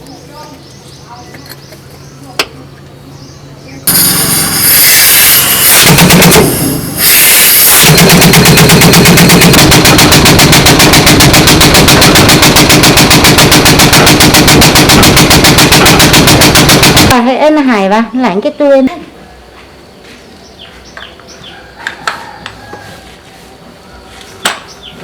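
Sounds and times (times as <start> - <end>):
steady motor hum: 3.6 - 17.2
impact wrench rattling: 3.9 - 7.2, 7.8 - 17.2.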